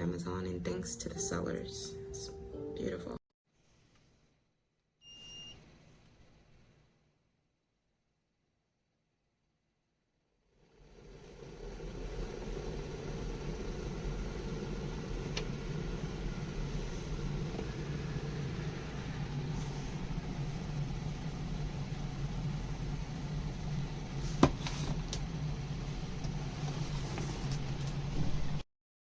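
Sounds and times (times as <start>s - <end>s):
electric kettle rumbling: 10.5s - 28.6s.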